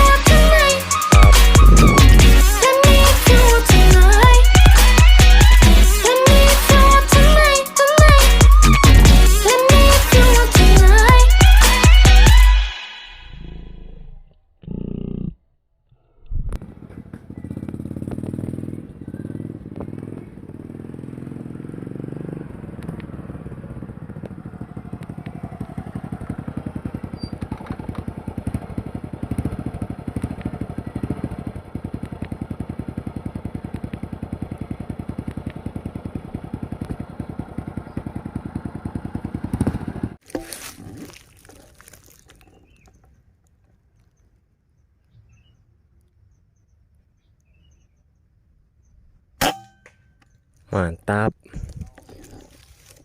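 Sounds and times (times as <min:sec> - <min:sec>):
motorcycle engine running: 0:00.0 - 0:12.6, 0:16.6 - 0:43.0.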